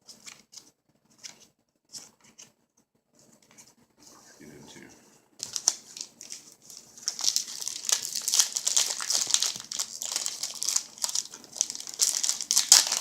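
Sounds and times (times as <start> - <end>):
wrapper tearing and crinkling: 5.4 - 13.0.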